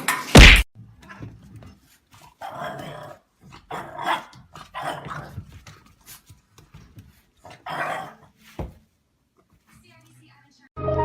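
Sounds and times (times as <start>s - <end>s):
dog growling and barking: 1.0s - 5.6s, 7.4s - 8.3s.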